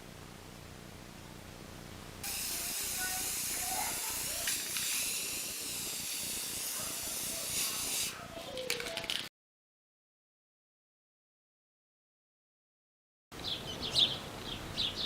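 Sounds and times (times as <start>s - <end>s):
spray paint can hissing: 2.2s - 8.2s.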